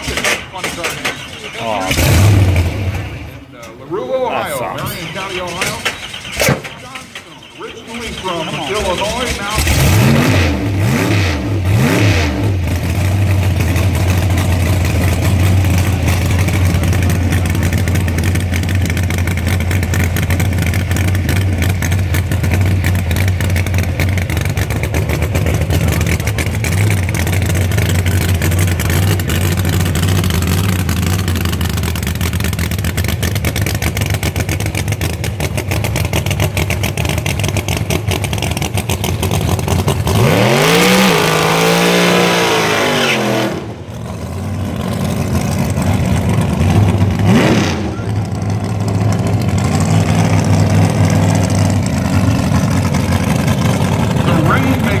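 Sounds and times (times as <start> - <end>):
drag car engine idling and revving: 0.0 - 55.0.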